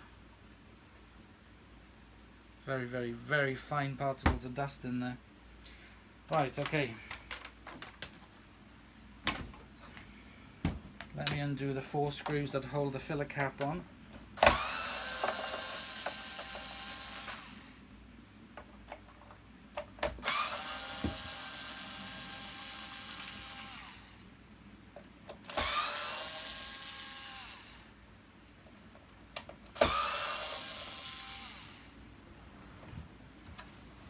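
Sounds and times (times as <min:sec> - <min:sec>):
cordless drill motor whirring: 0:14.4 - 0:17.8, 0:20.2 - 0:24.2, 0:25.5 - 0:28.0, 0:29.7 - 0:32.0.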